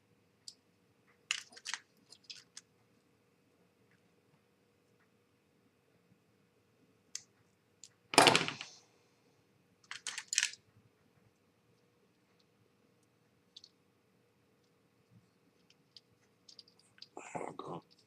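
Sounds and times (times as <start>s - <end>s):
plastic parts clicking: 1.3s - 2.7s, 9.8s - 10.6s.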